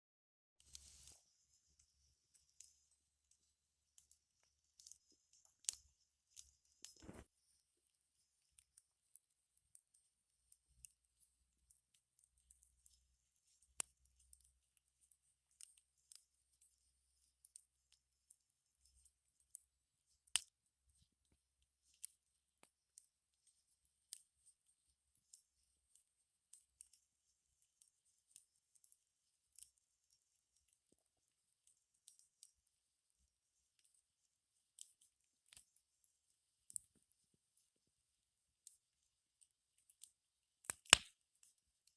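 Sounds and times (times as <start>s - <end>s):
campfire crackling and popping: 0.6s - 7.7s, 40.6s - 41.2s.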